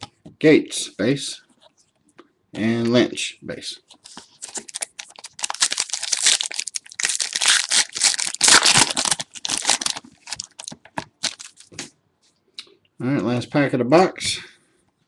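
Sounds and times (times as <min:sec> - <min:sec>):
wrapper tearing and crinkling: 0:04.0 - 0:11.9.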